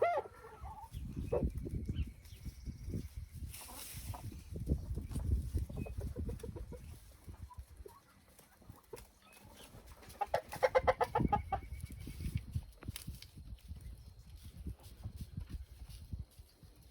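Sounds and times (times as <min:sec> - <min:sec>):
chickens clucking: 0:00.0 - 0:12.4.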